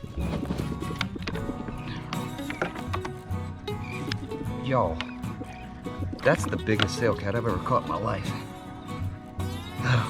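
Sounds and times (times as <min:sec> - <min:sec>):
background music with held tones: 0:00.0 - 0:10.0.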